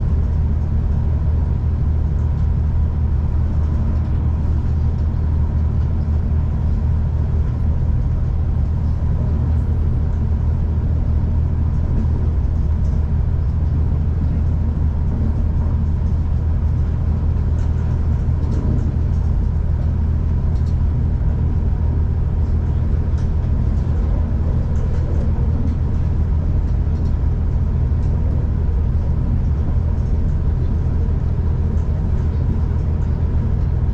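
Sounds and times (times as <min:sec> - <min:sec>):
diesel train rumbling: 0:00.0 - 0:33.9.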